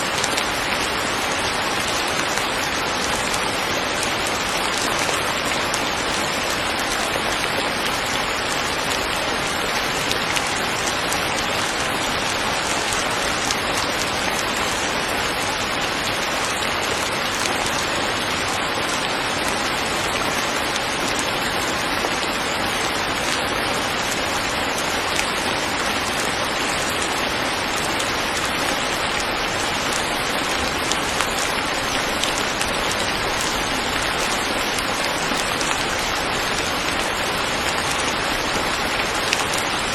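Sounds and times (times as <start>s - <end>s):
rain hissing on surfaces: 0.0s - 39.9s.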